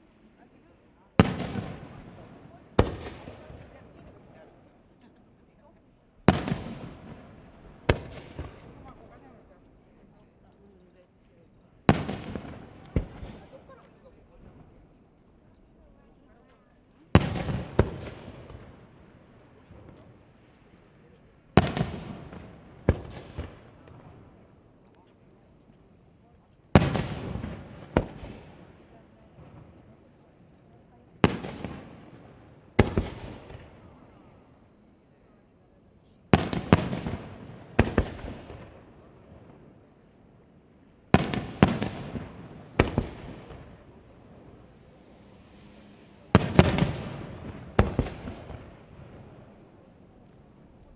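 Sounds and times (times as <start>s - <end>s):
firework bursts with echo: 1.2s - 4.3s, 6.2s - 9.4s, 11.8s - 13.8s, 17.1s - 24.7s, 26.7s - 30.2s, 31.1s - 34.1s, 36.3s - 39.9s, 41.0s - 49.6s.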